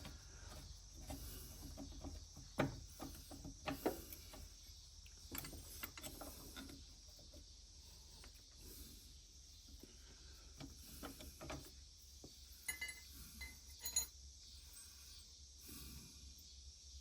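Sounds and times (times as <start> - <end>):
small metal parts clicking: 12.6 - 14.2.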